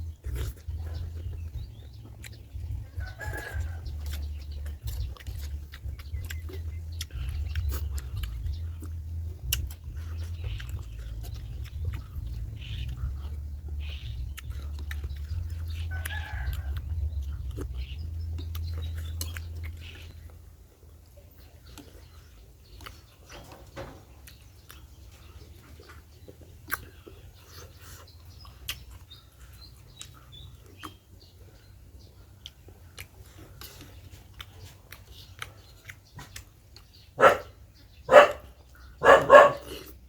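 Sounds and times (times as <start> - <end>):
dog barking: 37.2 - 39.9.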